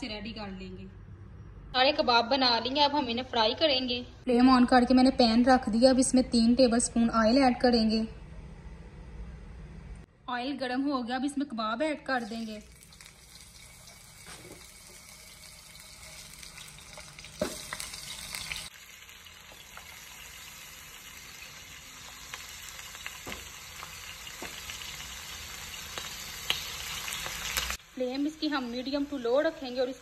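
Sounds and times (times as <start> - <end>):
kebabs sizzling in oil: 12.1 - 30.0
oil popping and crackling: 12.2 - 28.3.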